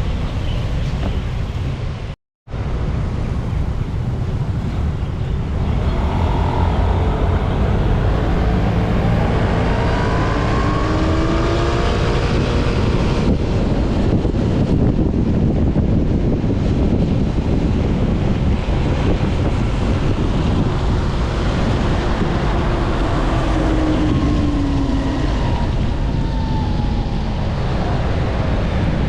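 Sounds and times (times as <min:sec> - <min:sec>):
traffic noise: 0:00.0 - 0:29.0
wind buffeting microphone: 0:00.0 - 0:29.0
faint rising engine whines: 0:02.6 - 0:14.8, 0:18.6 - 0:29.0.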